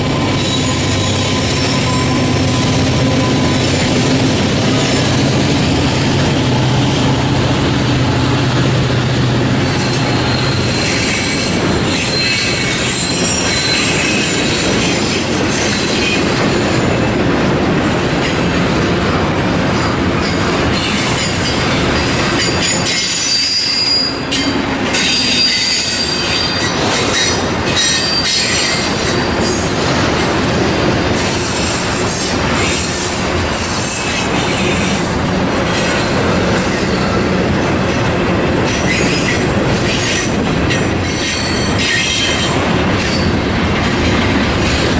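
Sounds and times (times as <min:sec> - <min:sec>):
steel wheels squealing: 0:00.0 - 0:16.8, 0:20.2 - 0:30.0, 0:38.6 - 0:44.9
train engine drone: 0:00.0 - 0:44.9.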